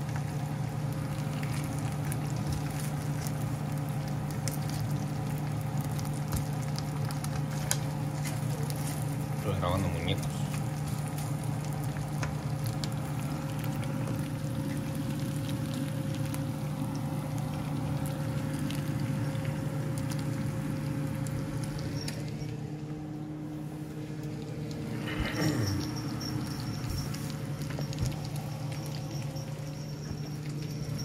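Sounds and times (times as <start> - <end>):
chicken frying in a pan: 0.0 - 23.1, 25.8 - 31.0
low hum: 10.4 - 31.0.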